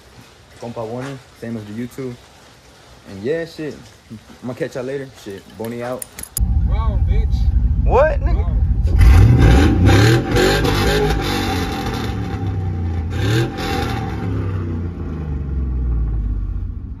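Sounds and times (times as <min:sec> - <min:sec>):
truck engine revving and idling: 0:06.4 - 0:17.0.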